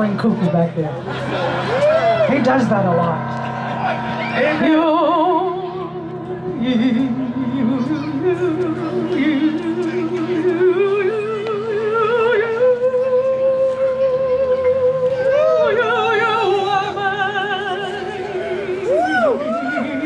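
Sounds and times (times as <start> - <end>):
vibrato solo melody: 1.1 - 12.3.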